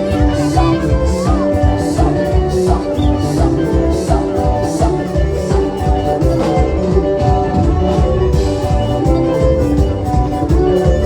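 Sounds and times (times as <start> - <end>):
band music with heavy drums: 0.0 - 11.0.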